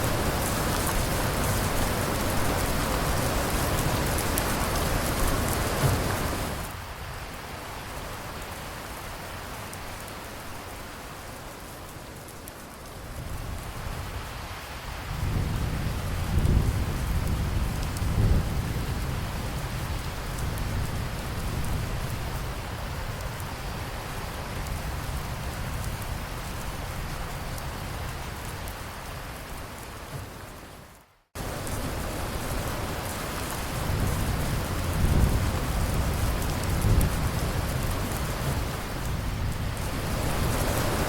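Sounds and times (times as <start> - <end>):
steady rain falling: 0.0 - 41.0
low rolling thunder: 15.0 - 23.5, 31.4 - 41.0.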